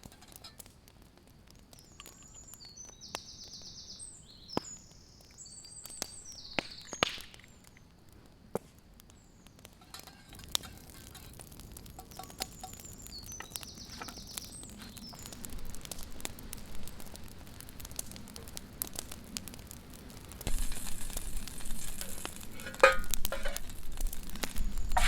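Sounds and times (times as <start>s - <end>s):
burger sizzling in a pan: 20.4s - 25.0s.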